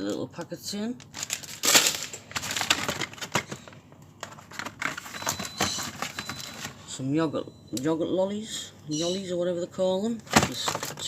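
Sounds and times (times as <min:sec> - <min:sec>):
plastic packets crinkling: 0:00.9 - 0:06.8, 0:10.3 - 0:11.0.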